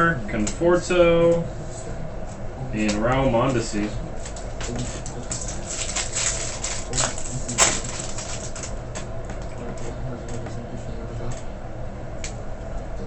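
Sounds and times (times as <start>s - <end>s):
steady low hum: 0.0s - 13.0s
cards and wrapper crinkling: 4.7s - 8.7s.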